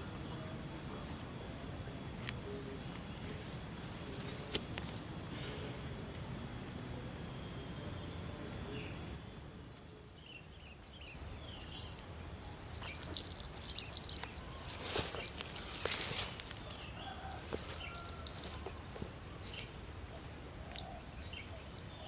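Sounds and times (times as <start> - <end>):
sharp clicks and rustles: 12.8 - 20.0.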